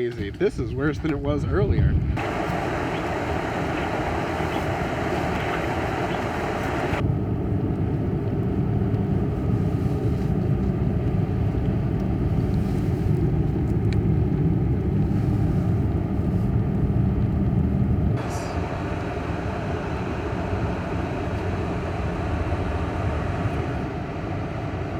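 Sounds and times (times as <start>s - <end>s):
car driving rumble: 2.0s - 24.9s
wind and snow hiss: 2.2s - 7.0s, 8.7s - 17.0s.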